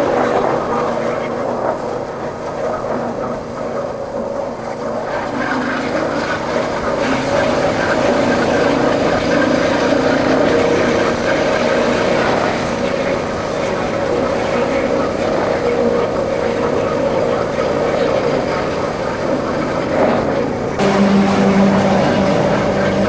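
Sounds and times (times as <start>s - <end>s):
motorcycle engine running: 20.7s - 23.0s.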